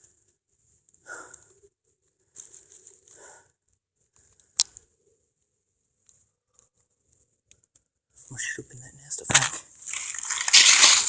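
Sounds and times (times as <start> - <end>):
leaves and clothing rustling: 9.4 - 11.0.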